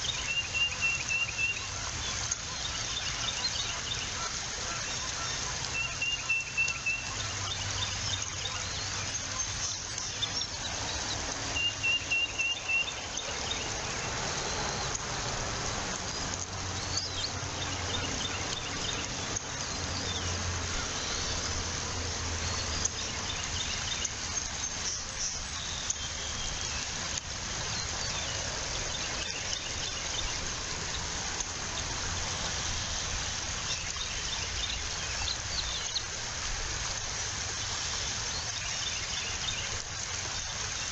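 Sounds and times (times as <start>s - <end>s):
birds chirping rapidly: 0.0s - 15.0s
wind hiss: 7.1s - 40.9s.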